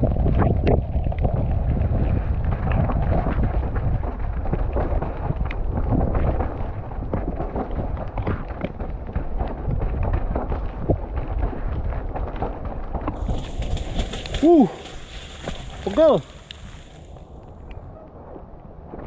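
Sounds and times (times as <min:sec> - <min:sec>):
wind buffeting microphone: 0:00.0 - 0:19.0
bike rattling and knocking: 0:02.6 - 0:17.0.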